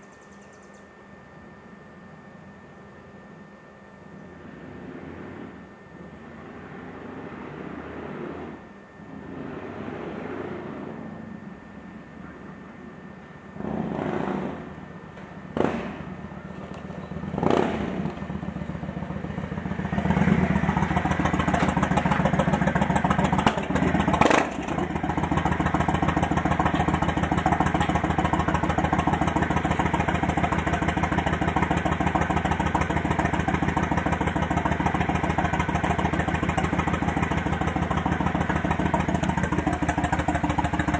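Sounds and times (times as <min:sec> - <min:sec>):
motorcycle engine running: 0:04.2 - 0:12.8, 0:13.5 - 0:40.9
engine revving blip: 0:13.6 - 0:31.3.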